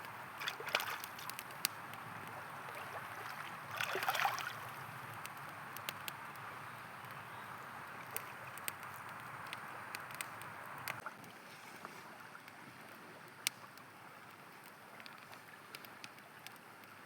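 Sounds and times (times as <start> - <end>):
campfire crackling and popping: 0.0 - 11.4, 12.2 - 17.0
river flowing: 0.0 - 13.0.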